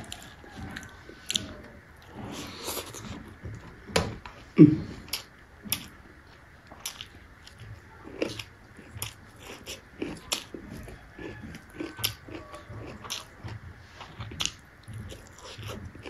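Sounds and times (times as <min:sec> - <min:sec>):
close-up chewing: 0:00.0 - 0:03.8, 0:04.4 - 0:16.0.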